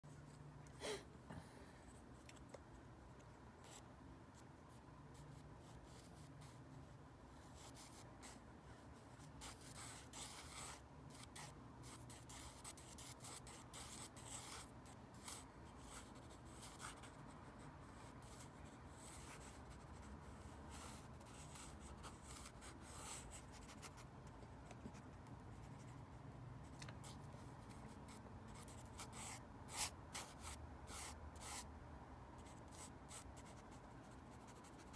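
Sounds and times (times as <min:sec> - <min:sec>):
pencil drawing on paper: 0:09.0 - 0:24.0.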